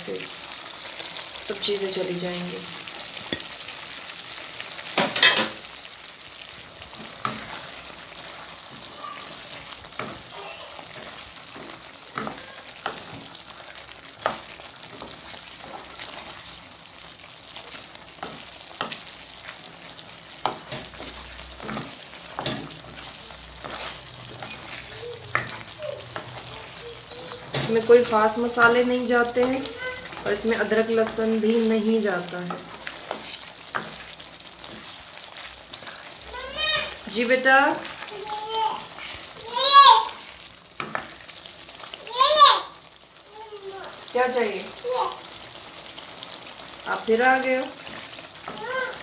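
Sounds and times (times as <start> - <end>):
meat sizzling in a pan: 0.0 - 49.0
spatula scraping a pan: 6.8 - 16.7, 17.5 - 38.1, 38.8 - 41.4, 47.2 - 49.0.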